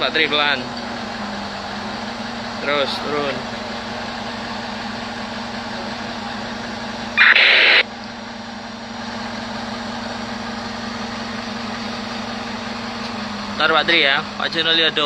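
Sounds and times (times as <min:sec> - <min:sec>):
diesel engine humming: 0:00.0 - 0:15.0
loud hiss: 0:07.2 - 0:07.8.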